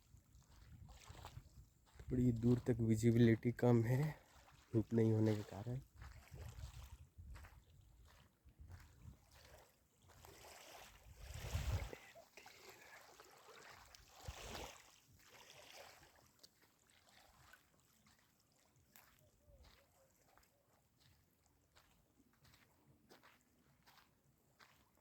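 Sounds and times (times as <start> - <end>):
wind buffeting microphone: 6.0 - 9.2, 11.1 - 12.0
rush of water: 9.4 - 18.2.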